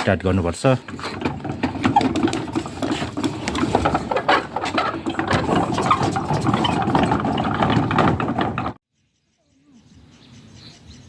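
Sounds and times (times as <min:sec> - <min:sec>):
prayer wheels rattling and clicking: 0:00.0 - 0:08.8.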